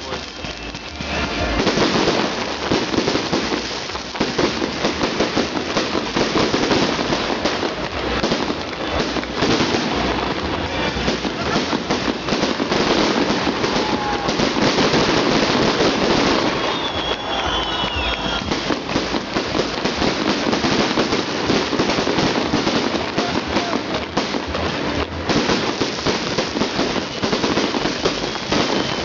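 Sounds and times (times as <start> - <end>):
fireworks crackling: 0.0 - 29.0
fireworks whistling: 0.0 - 29.0.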